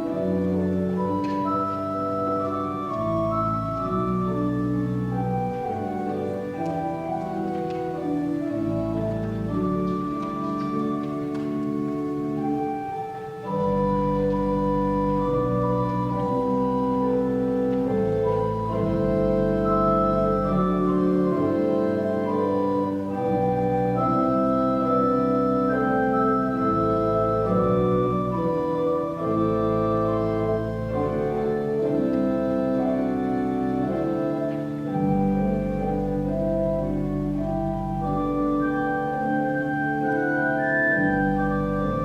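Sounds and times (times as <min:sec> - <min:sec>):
organ chords: 0:00.0 - 0:42.0
deep pedal bass notes: 0:11.8 - 0:42.0.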